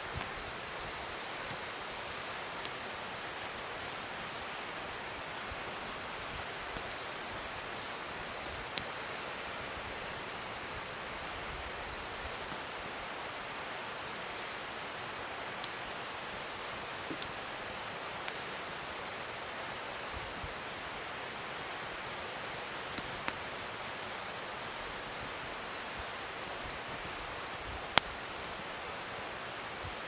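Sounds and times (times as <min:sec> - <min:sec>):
wood fire crackling and popping: 0:00.0 - 0:30.0.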